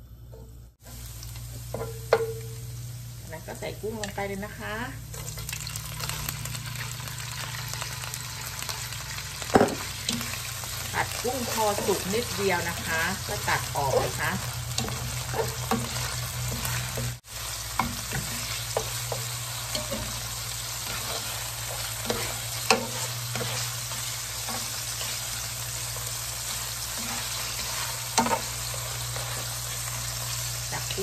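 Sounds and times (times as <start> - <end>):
shrimp sizzling in oil: 0.8 - 31.0
spatula scraping a pan: 8.6 - 30.9.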